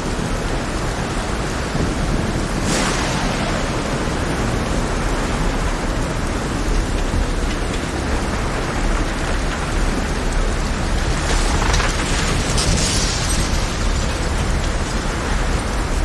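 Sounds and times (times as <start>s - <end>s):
heavy rain: 0.0s - 16.0s
rough sea waves: 0.0s - 16.0s.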